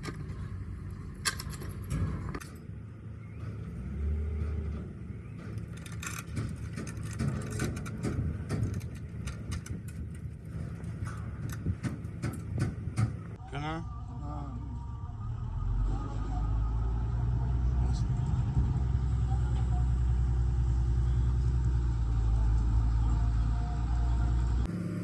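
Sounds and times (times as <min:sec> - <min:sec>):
vehicle engine rumbling: 0:00.0 - 0:25.0
metallic clinks and rattles: 0:05.4 - 0:12.8
knocks: 0:11.5 - 0:13.3.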